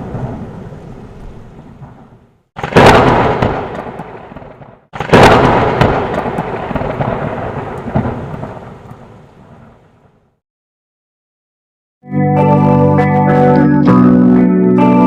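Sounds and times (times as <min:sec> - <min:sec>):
thunderclap rumbling: 0:00.0 - 0:10.3.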